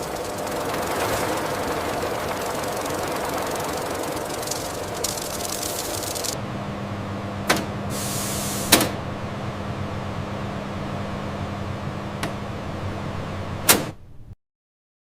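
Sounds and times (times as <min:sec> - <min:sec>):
high hiss: 0:00.0 - 0:06.4, 0:07.9 - 0:08.8
machine hum: 0:00.0 - 0:14.4.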